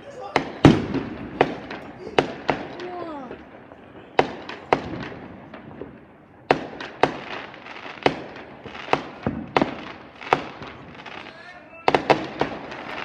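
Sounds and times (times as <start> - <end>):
fireworks bangs: 0.0 - 13.0
fireworks popping and crackling: 0.0 - 13.0.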